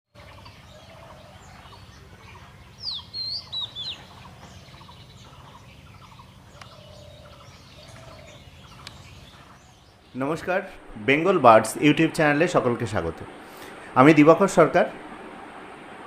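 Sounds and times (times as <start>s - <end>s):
faint chirping of birds: 0.1s - 14.4s
steady low hum: 0.2s - 16.0s.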